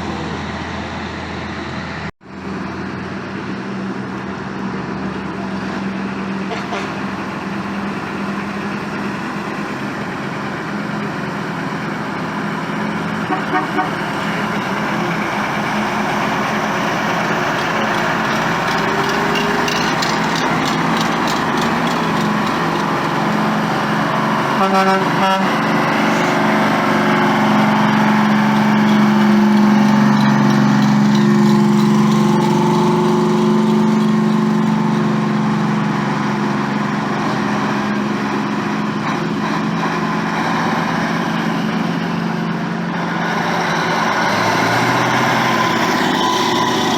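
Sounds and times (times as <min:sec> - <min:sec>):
heavy truck engines: 0:00.0 - 0:46.9
truck horn toots: 0:13.2 - 0:14.2, 0:24.5 - 0:26.4.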